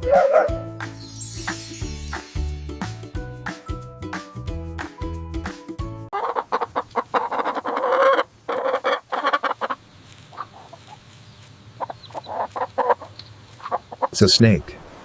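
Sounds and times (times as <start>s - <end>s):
chickens clucking: 6.1s - 14.3s.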